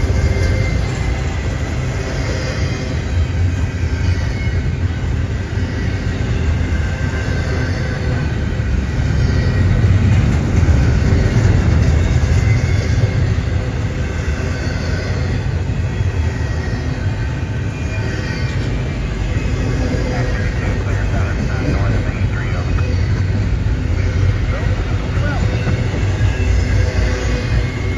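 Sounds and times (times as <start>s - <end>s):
train rumbling on rails: 0.0s - 27.9s.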